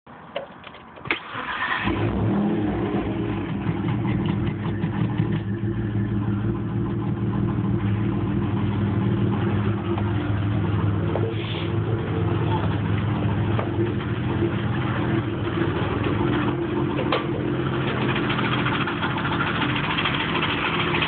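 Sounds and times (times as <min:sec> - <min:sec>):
car engine starting and running: 0:00.9 - 0:21.0.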